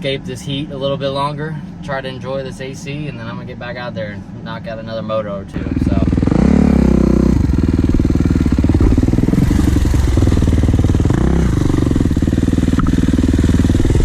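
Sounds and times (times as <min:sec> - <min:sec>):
dirt bike engine revving: 0:05.6 - 0:14.0.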